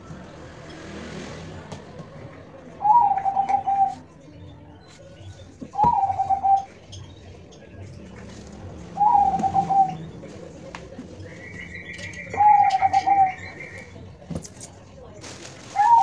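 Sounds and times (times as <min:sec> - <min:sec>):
dove cooing: 0:02.8 - 0:04.0, 0:05.8 - 0:06.7, 0:09.0 - 0:10.0, 0:12.3 - 0:13.5.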